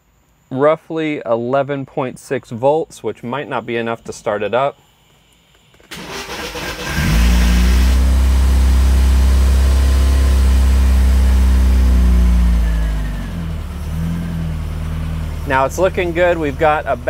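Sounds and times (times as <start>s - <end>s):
car engine cranking and idling: 5.9s - 17.0s.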